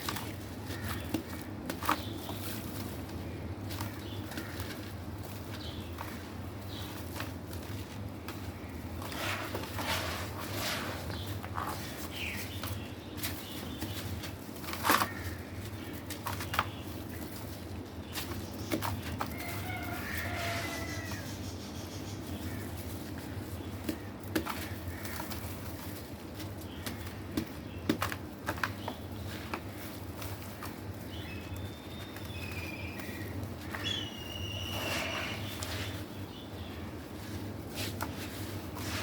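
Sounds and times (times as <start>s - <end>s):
faint animal call: 19.4s - 21.4s, 34.0s - 35.6s.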